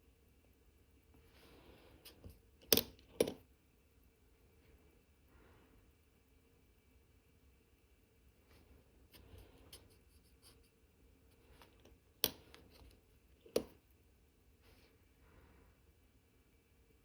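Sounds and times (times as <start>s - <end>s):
light scratches and ticks of tools: 1.0s - 3.5s, 8.4s - 13.9s.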